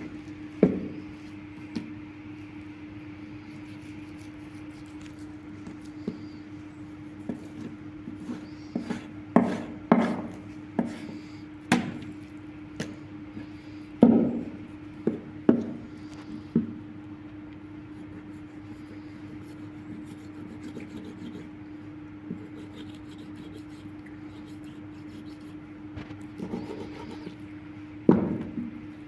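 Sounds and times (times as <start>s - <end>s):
steady low hum: 0.0s - 29.0s
meat chopping on wooden board: 0.6s - 1.0s, 8.8s - 12.1s, 14.0s - 15.8s.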